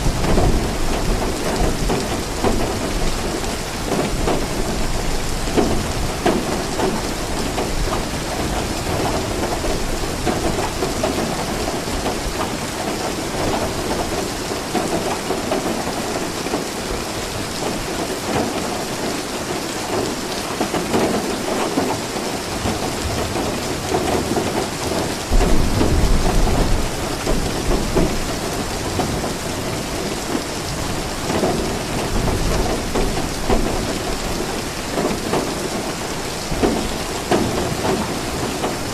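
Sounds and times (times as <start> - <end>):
heavy rain falling: 0.0 - 38.9
thunder rumbling: 22.6 - 38.9.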